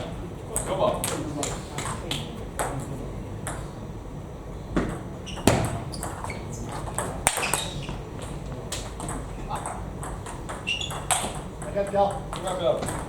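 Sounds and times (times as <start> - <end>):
table tennis balls clicking: 4.8 - 13.0.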